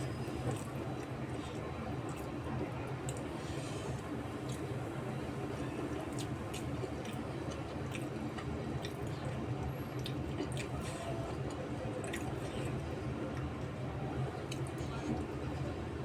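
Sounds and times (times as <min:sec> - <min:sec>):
person chewing food: 0:06.1 - 0:09.1.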